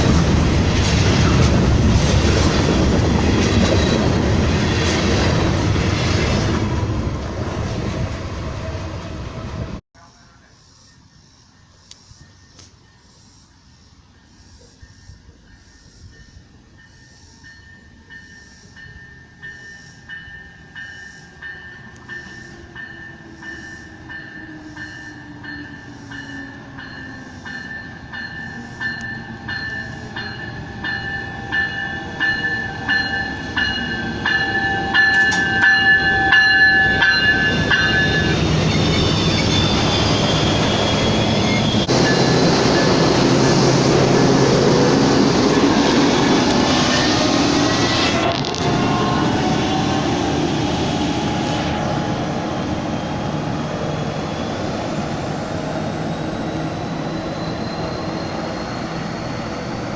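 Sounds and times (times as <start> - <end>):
train passing: 0.0 - 11.8, 12.7 - 59.9
crossing bell ringing: 14.2 - 48.1.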